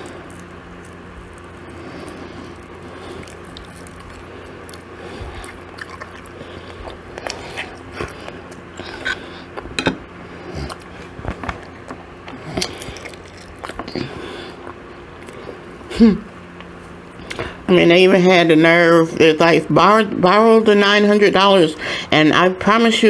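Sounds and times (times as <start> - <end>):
person chewing with crunches: 0.0 - 17.7.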